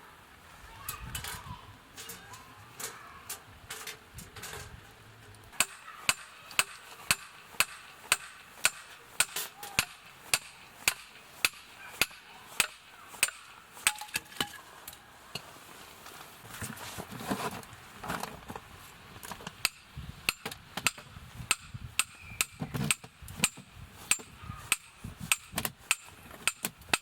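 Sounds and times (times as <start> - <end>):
hammer striking metal: 5.6 - 14.2.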